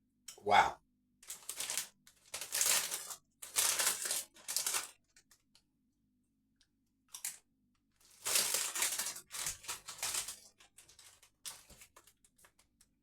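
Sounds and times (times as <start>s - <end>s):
crisps crunching and chewing: 1.2s - 5.3s, 8.0s - 12.6s.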